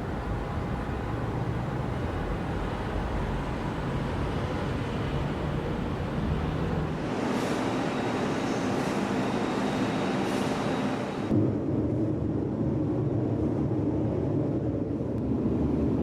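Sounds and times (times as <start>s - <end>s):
factory machinery rumble and hiss: 0.0s - 16.0s.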